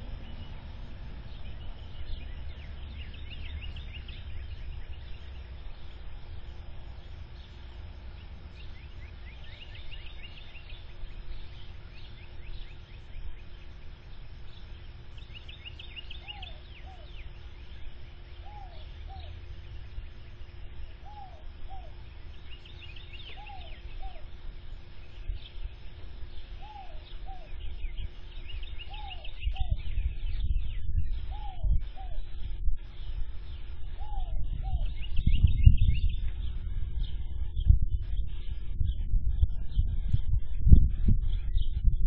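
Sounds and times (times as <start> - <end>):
birds calling short arched notes: 0.0 - 41.9
faint steady hum: 0.0 - 42.0
high falling bird chirps: 0.0 - 42.0
low rumble: 23.9 - 42.0.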